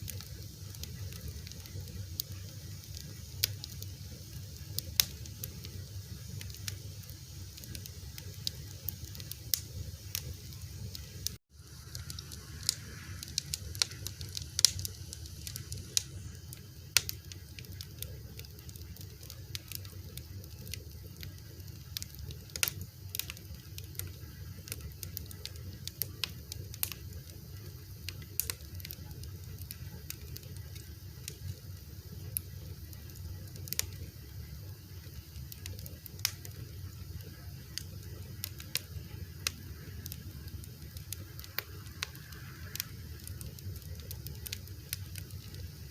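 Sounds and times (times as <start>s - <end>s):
fire crackling: 0.0s - 45.9s
low rumble: 11.5s - 16.3s.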